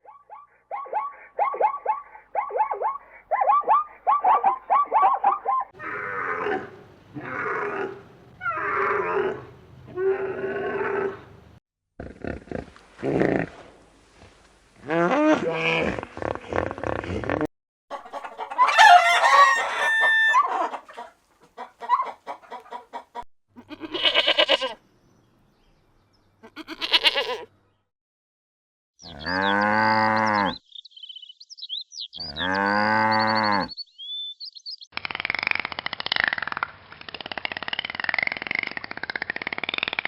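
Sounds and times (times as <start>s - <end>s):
rooster crowing: 18.4s - 20.8s
small birds chirping: 29.0s - 35.0s.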